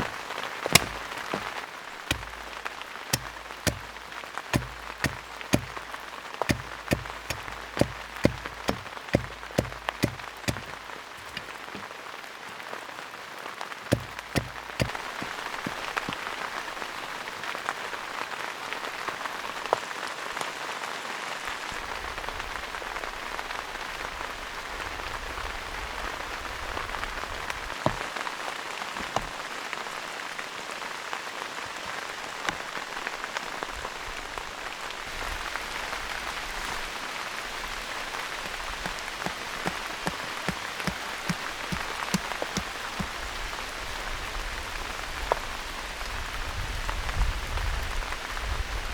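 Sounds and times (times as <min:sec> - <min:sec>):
heavy raindrops tapping: 0:00.0 - 0:12.0, 0:13.9 - 0:16.2.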